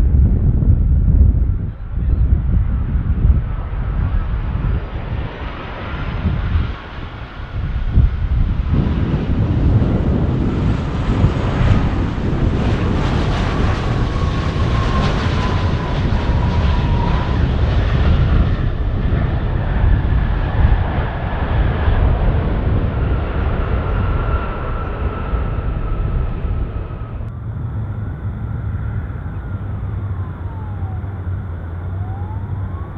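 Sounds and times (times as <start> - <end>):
jet engines rumbling: 0.0 - 32.9
thin engine whine: 7.0 - 32.9.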